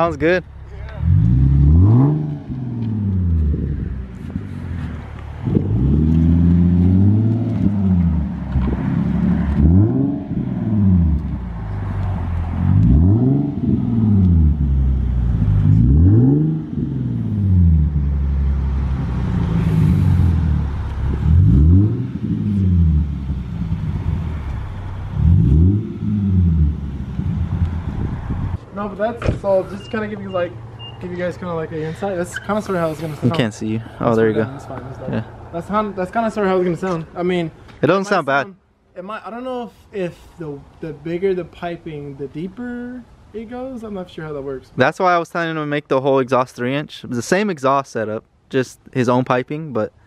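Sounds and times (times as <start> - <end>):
car engine revving: 0.4 - 28.6.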